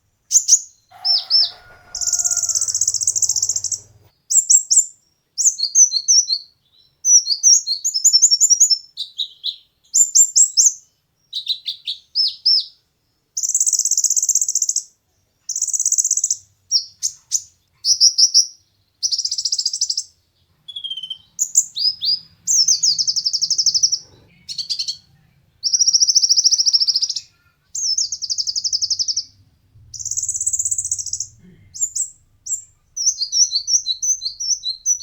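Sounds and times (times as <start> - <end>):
bird singing buzzy trills: 0.3 - 4.1, 25.6 - 35.0
bird twittering: 0.3 - 4.1, 25.7 - 35.0
bird chirps: 0.3 - 4.8, 19.0 - 35.0.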